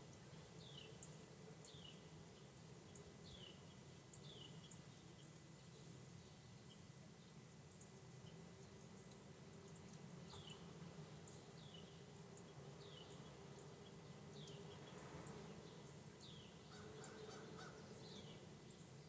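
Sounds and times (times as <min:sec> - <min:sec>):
faint bird calling: 0:16.7 - 0:17.9.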